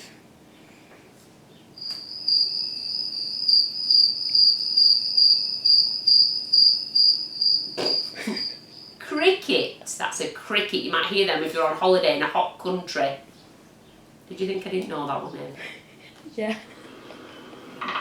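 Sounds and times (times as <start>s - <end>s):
cricket chirping: 1.8s - 9.4s.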